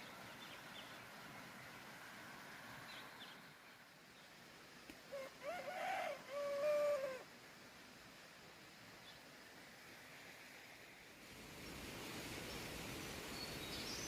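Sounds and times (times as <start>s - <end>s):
rooster crowing: 5.1s - 7.2s.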